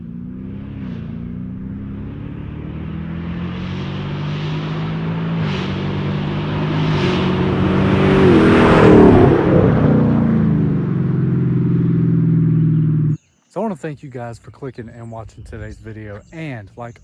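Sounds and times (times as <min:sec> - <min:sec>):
car engine accelerating hard: 0:00.0 - 0:13.2.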